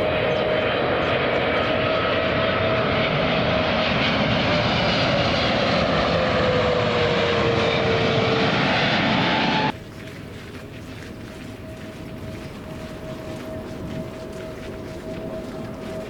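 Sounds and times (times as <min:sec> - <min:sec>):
jet engines roaring: 0:00.0 - 0:09.8.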